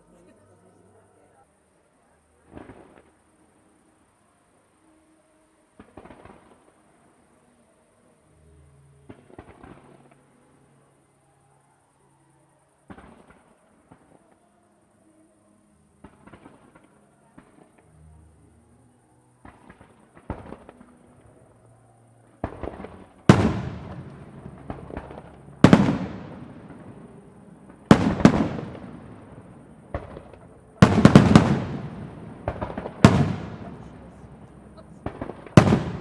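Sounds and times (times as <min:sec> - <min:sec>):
faint firework pops and crackles: 0:02.3 - 0:04.2, 0:05.6 - 0:07.6, 0:09.0 - 0:11.1, 0:12.6 - 0:15.0, 0:15.9 - 0:18.6, 0:19.4 - 0:36.0
loud firework bursts with echo: 0:22.4 - 0:36.0.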